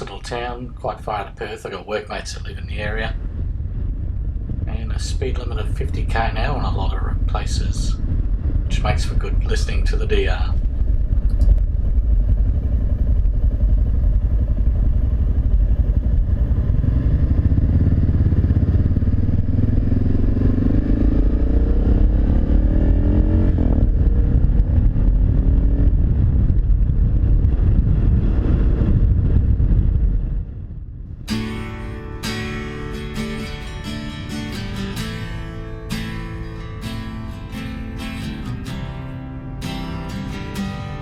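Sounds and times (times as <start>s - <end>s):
motorcycle engine accelerating: 9.9s - 41.0s.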